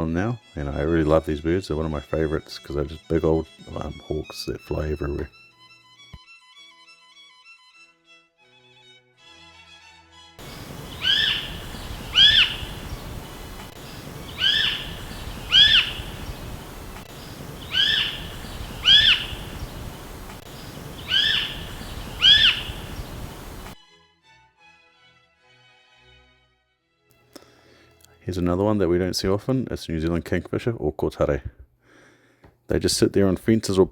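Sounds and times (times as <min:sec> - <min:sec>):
hawk whistled calls: 0:10.4 - 0:23.8
steady hiss: 0:10.4 - 0:23.8.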